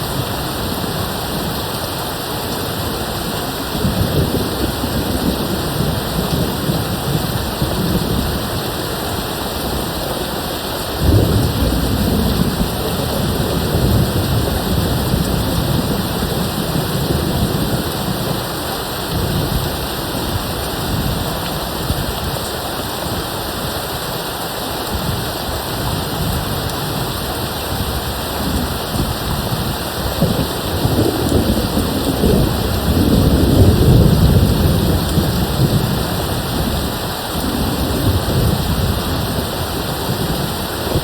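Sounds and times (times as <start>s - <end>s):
steady rain: 0.0s - 41.0s
rolling thunder: 10.8s - 22.3s, 25.8s - 41.0s.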